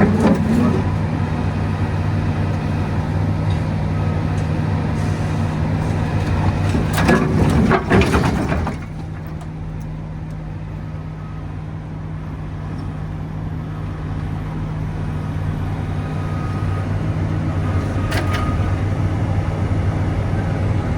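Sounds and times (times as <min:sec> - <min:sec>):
clanking and scraping: 0:00.0 - 0:01.5, 0:04.4 - 0:09.5, 0:17.7 - 0:18.7
excavator diesel engine running: 0:00.0 - 0:20.9.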